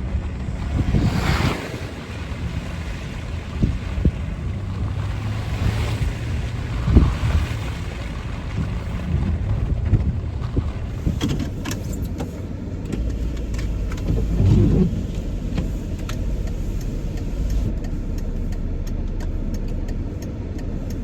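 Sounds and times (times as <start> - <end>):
car engine and road rumble: 0.0 - 21.0
regular ticks: 15.1 - 21.0.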